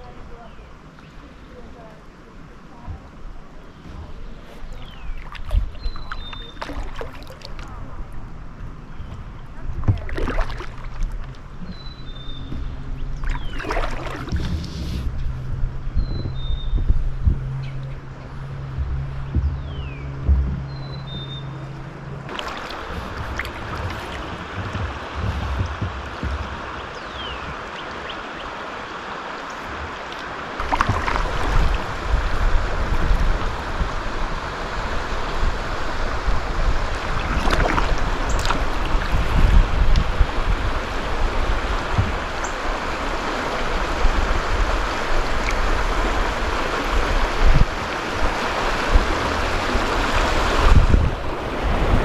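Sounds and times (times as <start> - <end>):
river water rushing and splashing: 0.0 - 52.0
wind buffeting microphone: 0.0 - 52.0
sharp knocks: 18.7 - 21.1.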